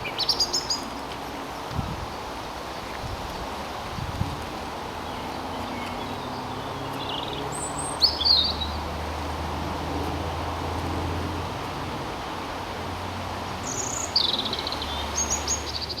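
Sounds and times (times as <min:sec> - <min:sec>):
songbirds singing: 0:00.0 - 0:09.6, 0:13.5 - 0:16.0.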